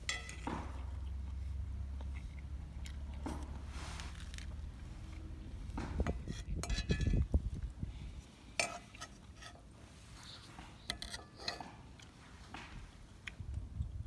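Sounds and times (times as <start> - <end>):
utensils clinking and knocking: 0.0 - 1.0, 5.8 - 7.2, 10.9 - 12.7
low rumble of handling cookware: 0.0 - 14.0.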